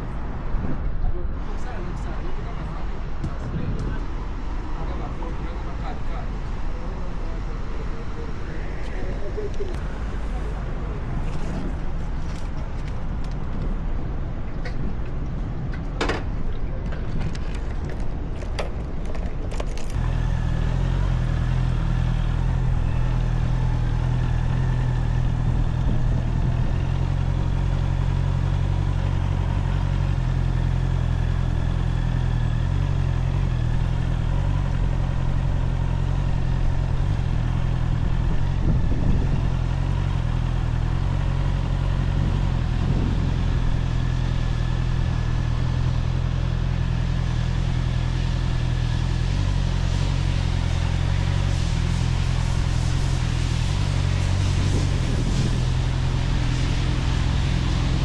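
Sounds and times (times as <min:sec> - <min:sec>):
clicks and clatter: 0:15.7 - 0:20.0
motorcycle engine running: 0:19.9 - 0:58.0.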